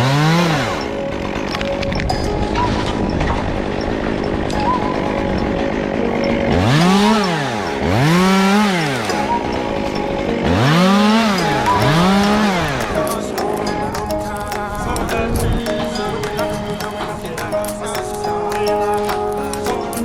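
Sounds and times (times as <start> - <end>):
chainsaw engine revving: 0.0 - 1.8, 3.2 - 13.8
background music: 0.0 - 20.0.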